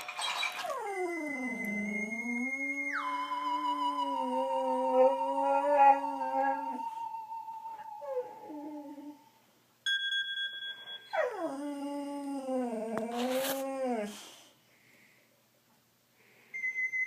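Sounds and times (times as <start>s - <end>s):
dog whining: 0.3s - 9.3s, 11.1s - 14.4s
dog howling: 0.6s - 9.3s.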